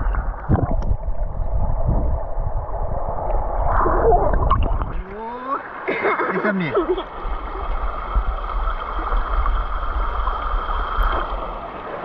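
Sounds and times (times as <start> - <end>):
heavy low rumble: 0.0 - 5.2
water splashing and churning: 0.0 - 12.0.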